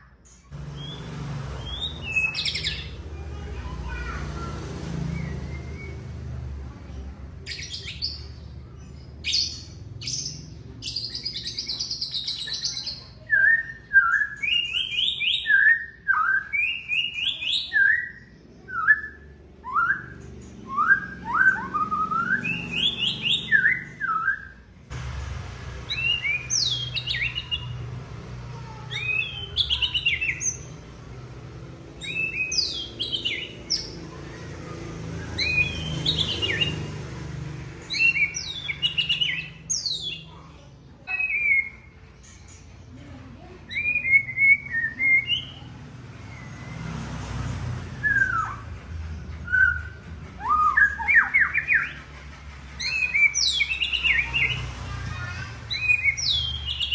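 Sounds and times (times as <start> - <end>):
bird singing whistled phrases: 5.2 - 6.2, 9.2 - 24.6, 28.9 - 30.6, 32.0 - 34.0, 35.2 - 36.9, 37.8 - 40.4, 41.1 - 41.9, 43.7 - 45.6, 48.0 - 48.6, 49.4 - 52.0, 52.8 - 54.6, 55.7 - 56.9.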